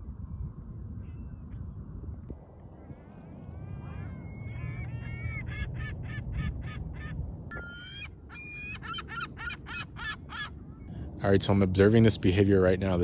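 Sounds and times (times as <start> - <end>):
steady low rumble: 0.0 - 13.0
gulls calling: 2.8 - 11.1.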